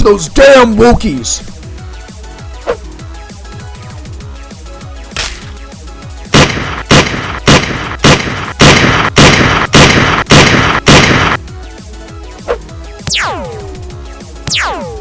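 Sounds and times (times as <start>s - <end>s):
electronic background music: 0.1s - 15.0s
loud gunshots: 6.3s - 11.4s.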